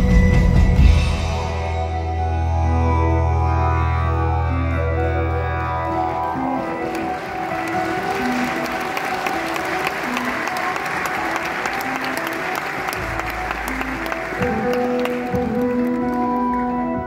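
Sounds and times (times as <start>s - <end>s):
held keyboard notes: 1.6s - 17.0s
audience applauding: 4.8s - 17.0s.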